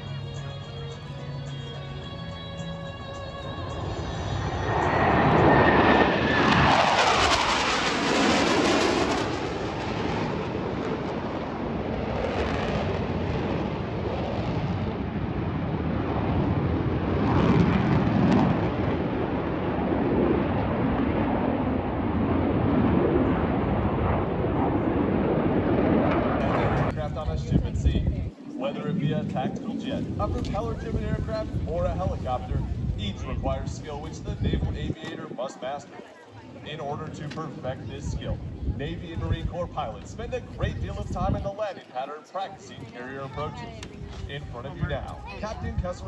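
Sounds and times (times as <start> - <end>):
jet roar: 2.6 - 35.8, 36.5 - 41.6, 42.2 - 46.0
jet whine falling in pitch: 3.2 - 9.9.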